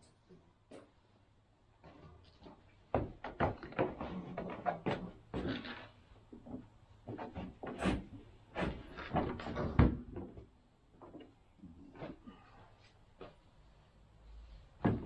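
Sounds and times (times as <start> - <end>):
hard objects knocking and clunking: 2.9 - 5.6.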